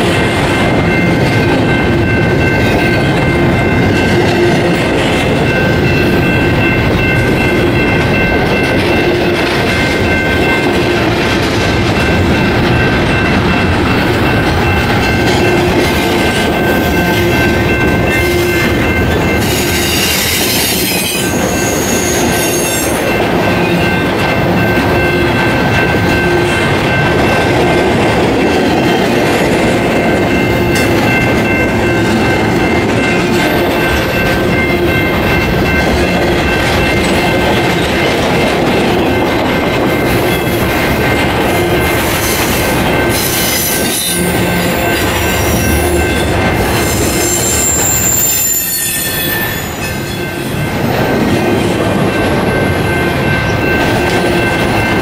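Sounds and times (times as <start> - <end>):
steel wheels rumbling on rail: 0.0 - 55.0
high-pitched wheel squeal: 46.8 - 50.2.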